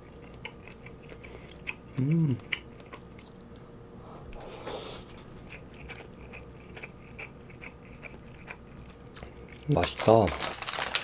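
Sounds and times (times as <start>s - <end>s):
person chewing: 0.0s - 9.9s.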